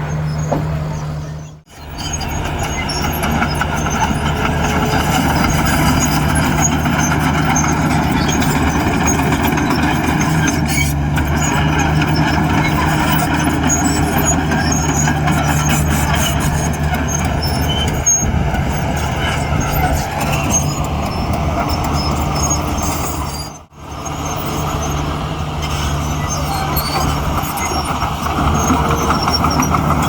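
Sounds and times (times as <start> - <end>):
heavy diesel engine under load: 0.0 - 30.0.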